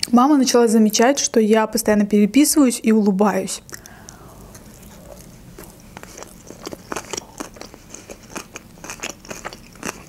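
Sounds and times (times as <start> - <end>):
mouth clicks while chewing: 3.7 - 10.0.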